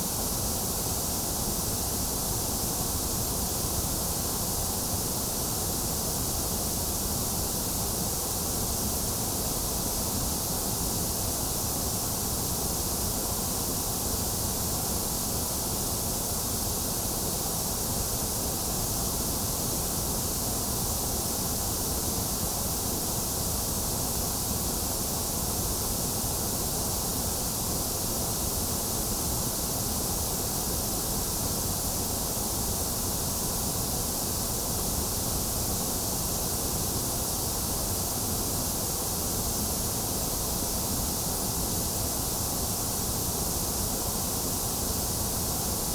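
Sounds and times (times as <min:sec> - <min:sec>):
white noise hiss: 0:00.0 - 0:45.9.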